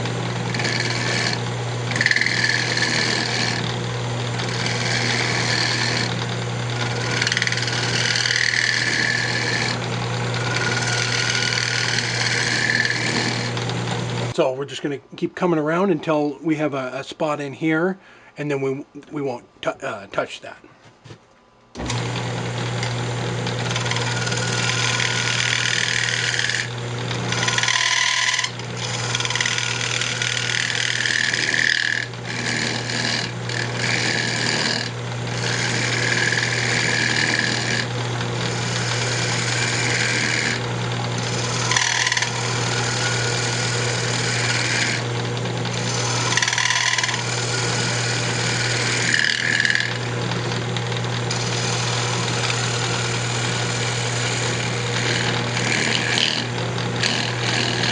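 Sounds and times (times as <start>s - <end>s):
lathe motor hum: 0.0s - 14.4s, 21.8s - 57.9s
turning tool cutting wood: 0.0s - 14.4s, 21.8s - 57.9s.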